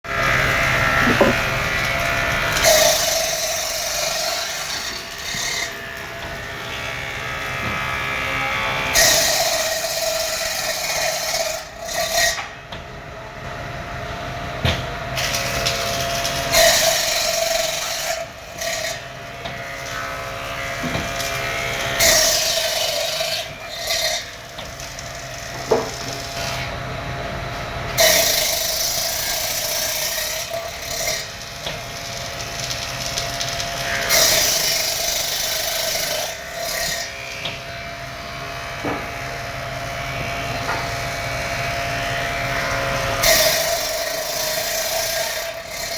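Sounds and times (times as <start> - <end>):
machine rasping through wood: 0.1 - 12.6, 15.1 - 26.9, 27.9 - 45.9
woodworking machine humming: 0.1 - 45.9
small knocks: 1.0 - 1.4.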